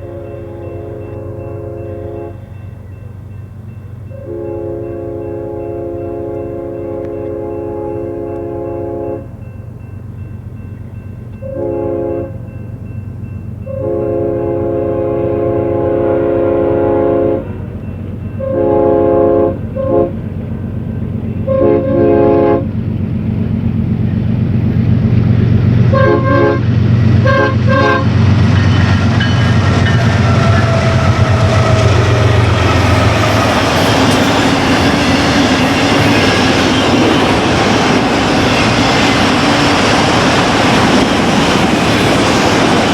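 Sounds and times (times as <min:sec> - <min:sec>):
train air horn blasts: 0:00.0 - 0:02.7, 0:04.1 - 0:09.4, 0:11.4 - 0:12.5, 0:13.6 - 0:20.4, 0:21.4 - 0:22.8, 0:25.8 - 0:41.6
diesel locomotive engine rumble: 0:00.0 - 0:42.9
train wheels rolling on rails: 0:00.0 - 0:42.9.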